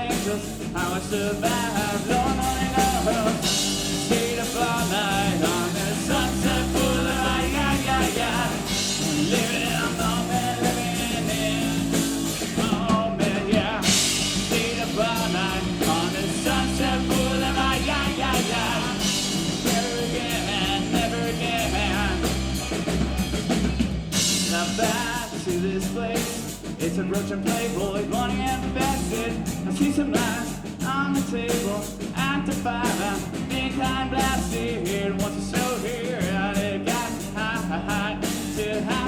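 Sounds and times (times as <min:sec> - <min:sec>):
electric guitar lead line: 0:00.0 - 0:25.7
bass guitar: 0:00.0 - 0:39.0
drum kit: 0:00.0 - 0:39.0.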